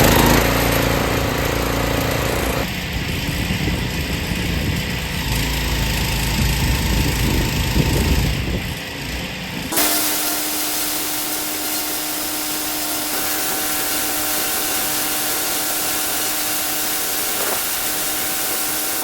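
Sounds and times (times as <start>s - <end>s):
pressure washer motor hum: 0.0s - 19.0s
pressure washer spraying: 9.7s - 19.0s.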